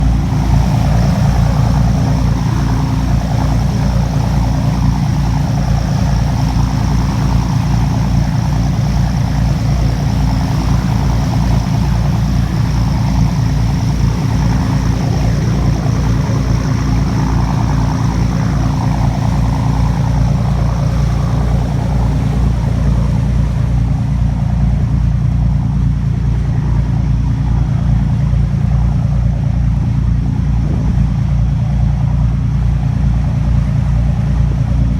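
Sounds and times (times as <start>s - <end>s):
boat engine running: 0.0s - 34.9s.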